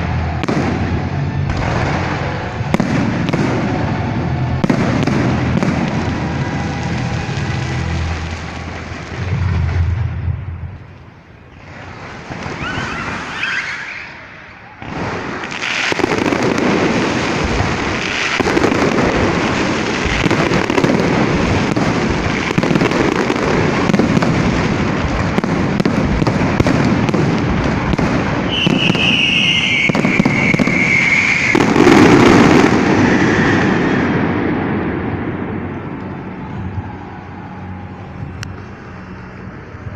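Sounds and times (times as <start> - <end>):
fireworks crackling and banging: 0.0 - 39.9
falling firework whistle: 11.5 - 25.2, 26.2 - 38.7.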